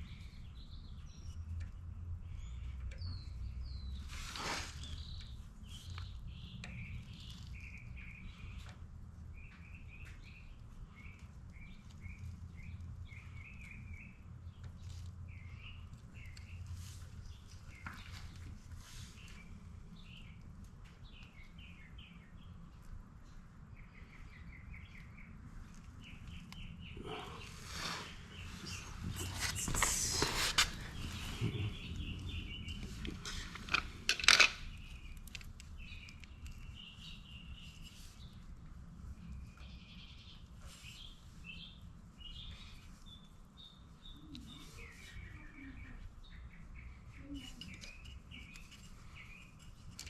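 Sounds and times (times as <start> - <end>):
low steady background rumble: 0.0 - 50.0
small birds chirping: 0.0 - 50.0
rustling with sharp clicks: 28.4 - 39.7, 47.5 - 50.0.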